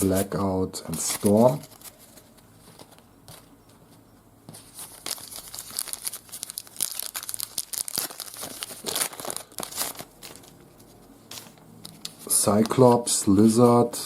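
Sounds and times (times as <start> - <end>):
paper wrapper tearing and crinkling: 0.9 - 2.4, 4.7 - 13.0.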